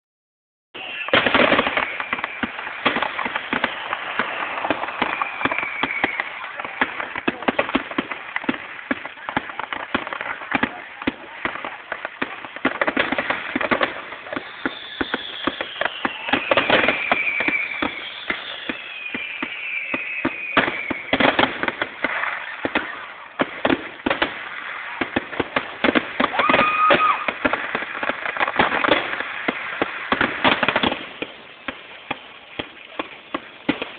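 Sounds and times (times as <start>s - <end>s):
fireworks whistles sliding down: 0.8s - 7.8s, 12.9s - 23.4s, 26.2s - 33.9s
fireworks bangs and crackling: 0.8s - 33.9s.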